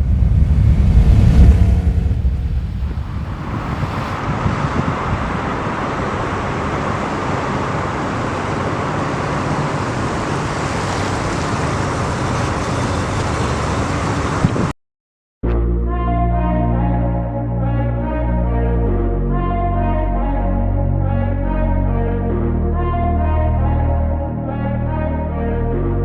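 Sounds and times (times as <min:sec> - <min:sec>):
pickup truck engine rumble: 0:00.0 - 0:14.4
road noise: 0:00.0 - 0:14.7.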